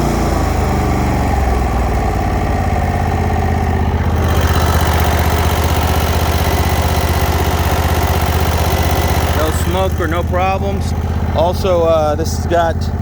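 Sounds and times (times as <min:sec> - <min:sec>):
riding mower engine idling: 0:00.0 - 0:13.0.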